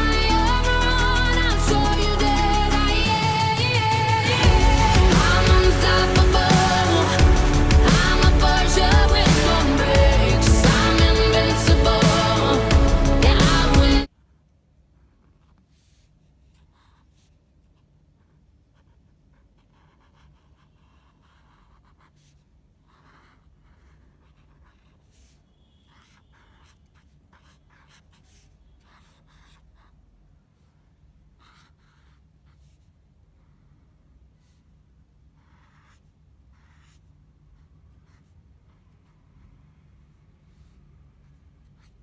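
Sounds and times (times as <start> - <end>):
low hum: 4.4 - 14.1
pencil scratching on paper: 15.0 - 30.0, 30.6 - 33.5, 34.4 - 39.5, 40.5 - 42.0.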